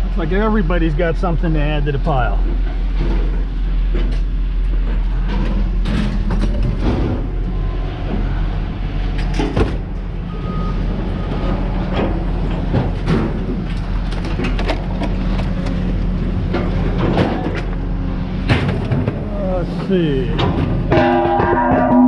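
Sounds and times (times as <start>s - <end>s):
heavy engine running: 0.0s - 22.0s
scrap metal clanking: 18.4s - 22.0s.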